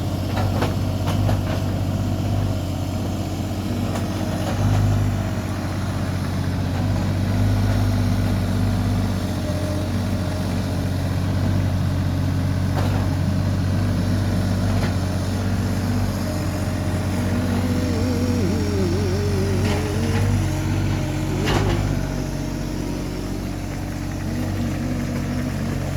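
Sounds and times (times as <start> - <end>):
large vehicle engine running: 0.0 - 25.9
wavering whine: 15.8 - 25.9.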